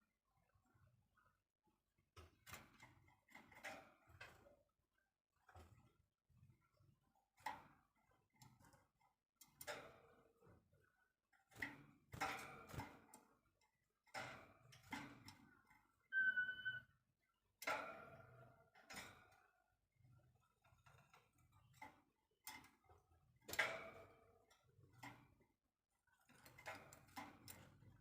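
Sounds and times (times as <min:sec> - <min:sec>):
bird whistled note: 0:16.1 - 0:16.9.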